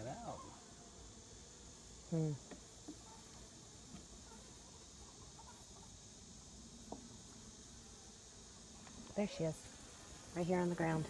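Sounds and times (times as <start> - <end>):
person humming: 2.1 - 2.4.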